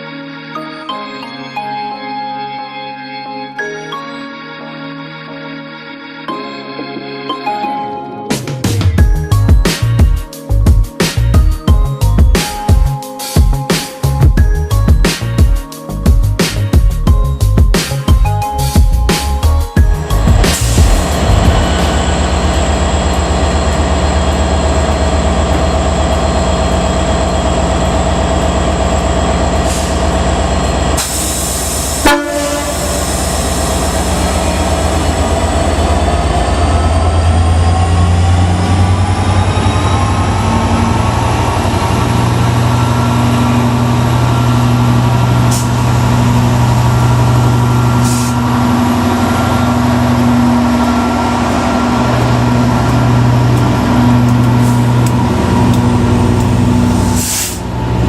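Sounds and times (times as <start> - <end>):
diesel locomotive engines running: 19.8 - 58.0
train horn blast: 31.8 - 34.8.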